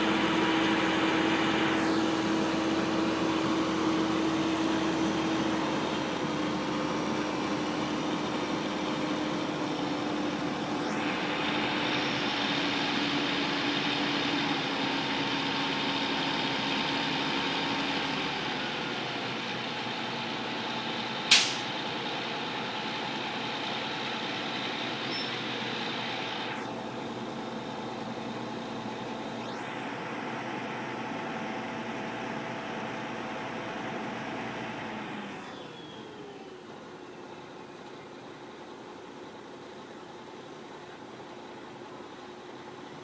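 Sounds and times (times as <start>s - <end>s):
machine running with low hum: 0.0s - 21.8s, 22.4s - 43.0s
sharp click: 21.3s - 21.7s.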